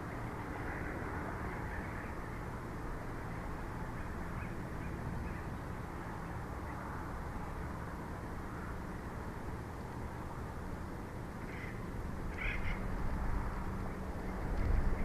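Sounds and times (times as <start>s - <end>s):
wind rumbling on microphone: 0.0s - 15.0s
faint bird calls: 11.4s - 13.0s.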